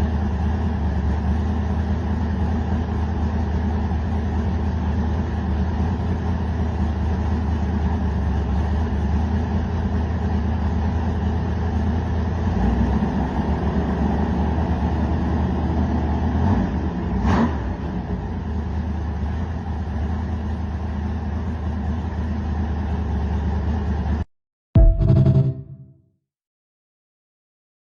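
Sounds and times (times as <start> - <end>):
v-eight engine running and revving: 12.2 - 18.6.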